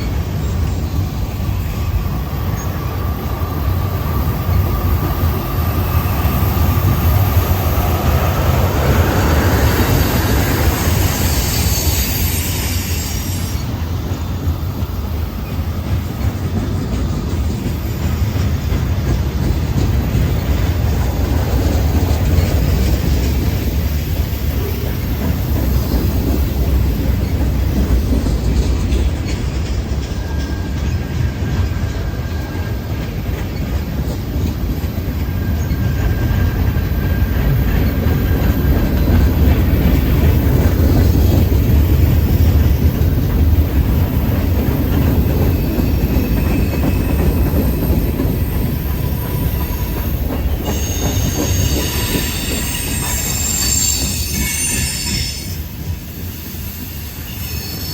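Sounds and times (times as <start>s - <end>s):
freight train rumbling past: 0.0s - 57.9s
high-pitched wheel squeal: 9.6s - 13.6s, 49.2s - 57.9s.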